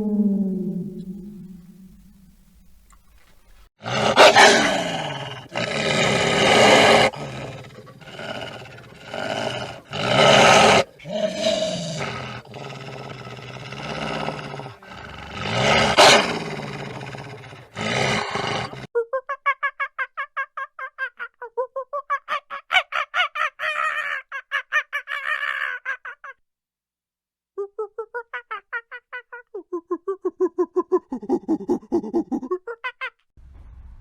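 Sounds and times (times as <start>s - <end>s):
large animal roaring and growling: 3.8s - 18.9s.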